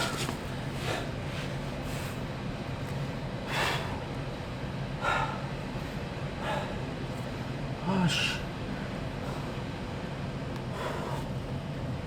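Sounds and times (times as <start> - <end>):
man breathing hard: 0.0 - 2.3, 3.4 - 4.2, 4.9 - 7.4, 8.0 - 9.8, 10.6 - 11.5
steady low hum: 0.0 - 12.0.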